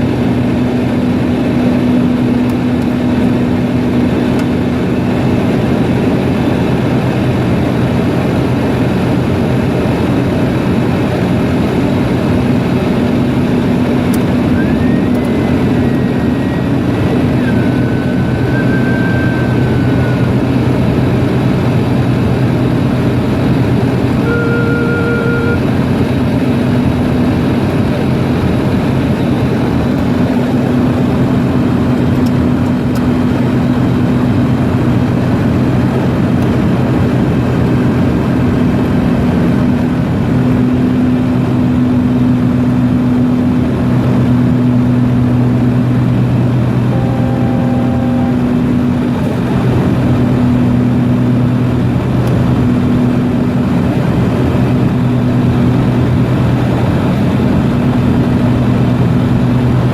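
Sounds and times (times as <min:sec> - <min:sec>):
propeller aircraft engines droning: 0:00.0 - 0:59.9
brief tones: 0:14.0 - 0:20.9, 0:24.1 - 0:25.8, 0:46.7 - 0:49.6.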